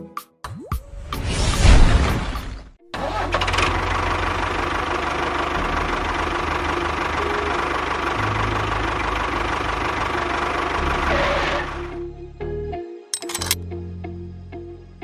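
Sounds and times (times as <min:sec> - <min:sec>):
engine running: 0:02.9 - 0:11.9.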